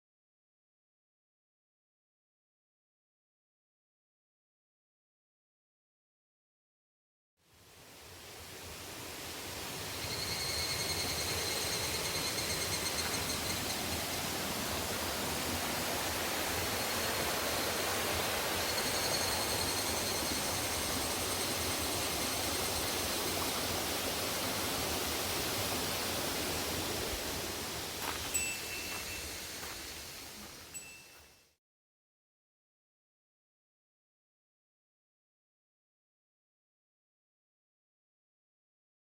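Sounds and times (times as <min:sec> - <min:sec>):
faint high steady tone: 0:09.7 - 0:14.3, 0:16.5 - 0:23.6, 0:28.0 - 0:31.6
waterfall rushing: 0:11.6 - 0:30.6.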